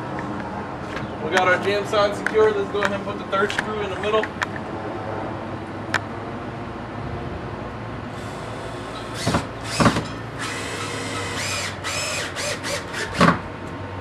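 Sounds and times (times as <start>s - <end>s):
power drill driving screw: 8.2s - 13.4s.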